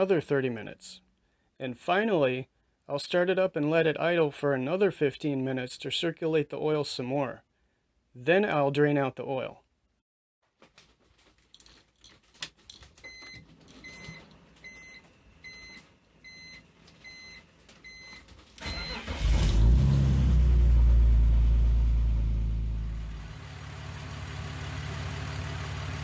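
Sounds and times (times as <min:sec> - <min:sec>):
car engine cranking and starting: 0:18.4 - 0:26.0
car engine idling: 0:18.7 - 0:26.0.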